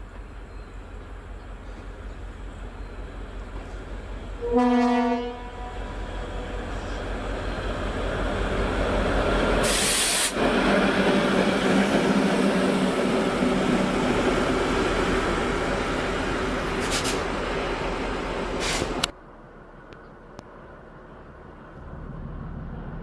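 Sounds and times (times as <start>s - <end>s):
train rumble: 0.0s - 23.0s
air hiss: 9.4s - 10.4s, 18.4s - 19.0s.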